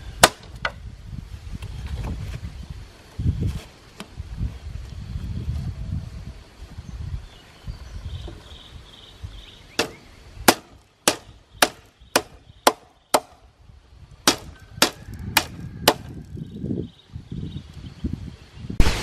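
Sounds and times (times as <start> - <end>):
hand tool striking wood: 9.8 - 13.4, 14.2 - 16.1.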